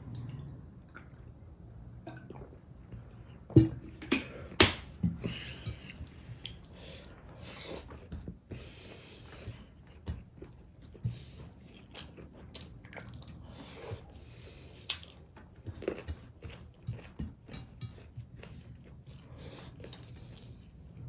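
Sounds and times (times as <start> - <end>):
chewing food: 5.4 - 21.0.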